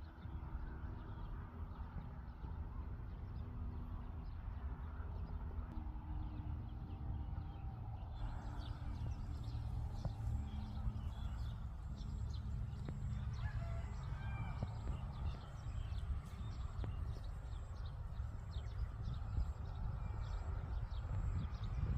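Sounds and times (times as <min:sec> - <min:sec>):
low rumble: 0:01.2 - 0:21.9
birds chirping: 0:06.2 - 0:21.9.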